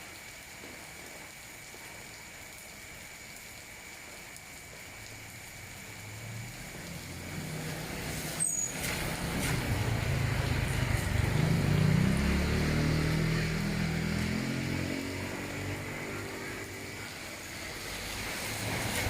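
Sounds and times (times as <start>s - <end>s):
rain hiss: 0.0s - 19.0s
vehicle engine passing: 6.5s - 19.0s
short high squeak: 8.4s - 8.8s.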